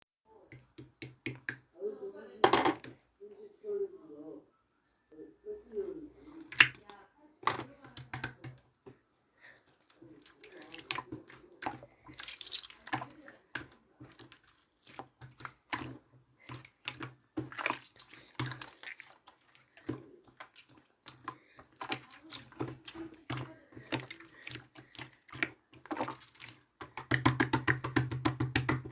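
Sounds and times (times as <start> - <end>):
slime squelching and popping: 0.5 - 1.7, 6.2 - 8.6, 9.5 - 28.9.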